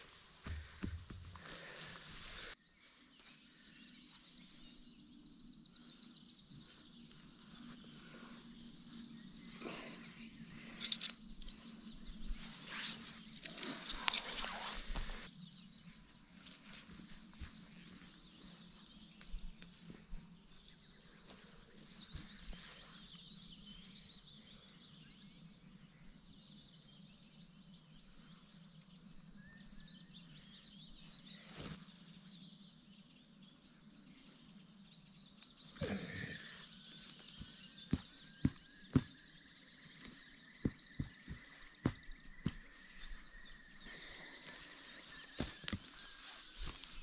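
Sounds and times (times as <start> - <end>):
birds twittering: 0.0 - 47.0.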